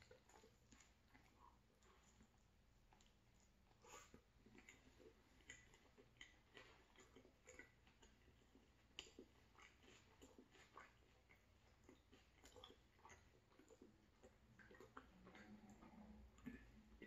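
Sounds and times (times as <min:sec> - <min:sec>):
wet chewing mouth clicks: 0:00.0 - 0:17.0
biting into taco: 0:03.8 - 0:17.0.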